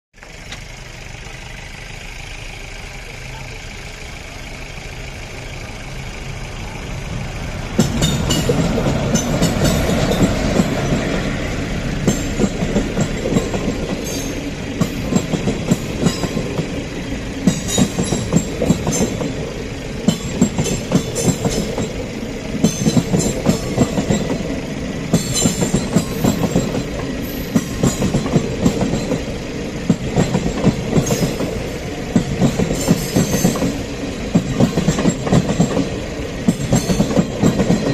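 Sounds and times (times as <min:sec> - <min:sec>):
train rumbling along track: 0:00.2 - 0:37.9
wheels clacking over rail joints: 0:06.3 - 0:37.9.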